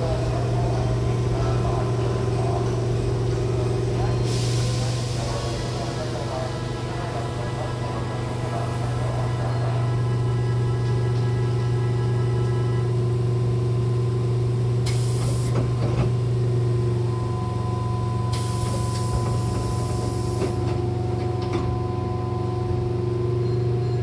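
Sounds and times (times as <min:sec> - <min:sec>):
train electrical hum: 0:00.0 - 0:24.0
pneumatic door air hiss: 0:04.2 - 0:06.2, 0:14.8 - 0:15.7, 0:18.3 - 0:20.8
train doors knocking shut: 0:18.4 - 0:21.8.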